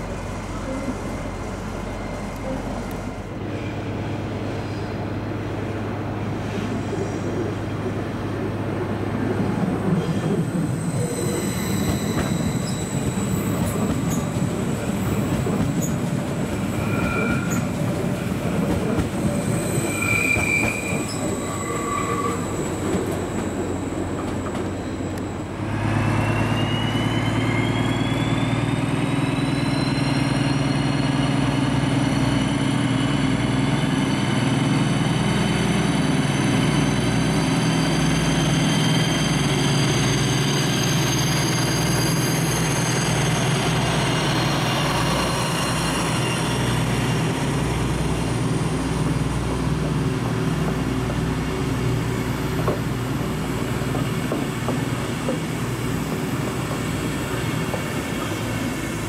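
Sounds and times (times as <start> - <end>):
diesel locomotives whining under load: 0.0 - 59.0
train rumbling over tracks: 0.0 - 59.0
train wheels squealing: 9.9 - 18.0, 19.2 - 31.8, 36.0 - 47.5.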